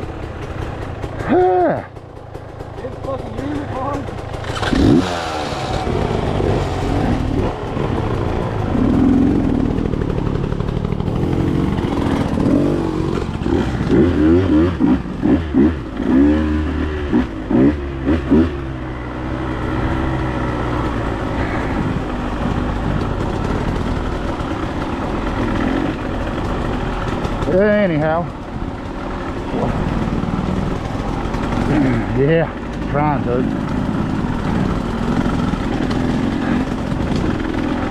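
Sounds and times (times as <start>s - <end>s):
dirt bike engine running: 0.0s - 37.9s.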